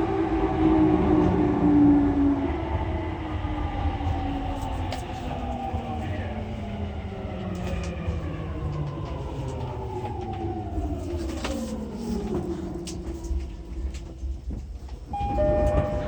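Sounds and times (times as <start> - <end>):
wheels rumbling on rail: 0.0 - 16.0
electric train inverter whine: 12.3 - 16.0.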